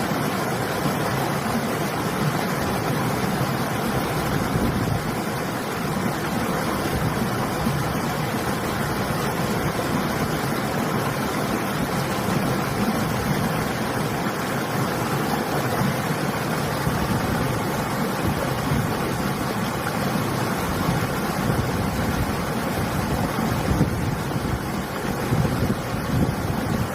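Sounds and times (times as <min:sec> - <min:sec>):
river water rushing: 0:00.0 - 0:26.9
wind blowing: 0:16.6 - 0:26.9.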